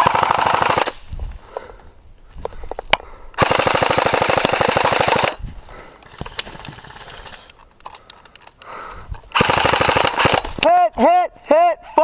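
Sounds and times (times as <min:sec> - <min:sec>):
gun clicks: 0:06.0 - 0:10.7
airsoft gun firing: 0:09.4 - 0:10.6.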